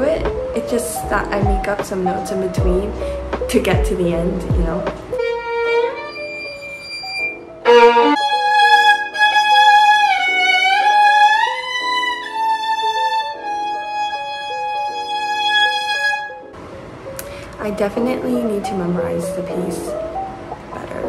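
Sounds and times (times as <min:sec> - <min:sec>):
solo violin playing: 0:05.1 - 0:16.4.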